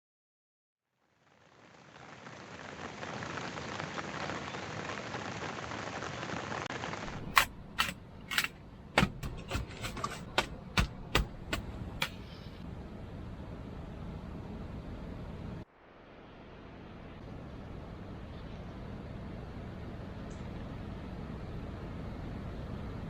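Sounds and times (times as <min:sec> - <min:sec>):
sharp irregular knocks: 0:07.1 - 0:12.2.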